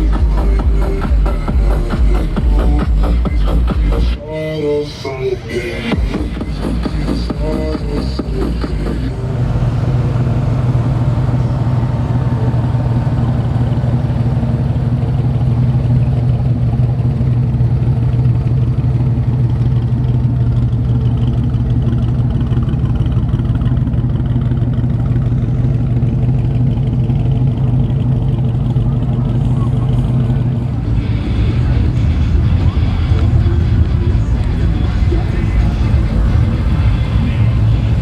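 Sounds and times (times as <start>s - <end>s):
background music: 0.0s - 9.1s, 30.7s - 38.0s
car engine running at low revs: 0.0s - 38.0s.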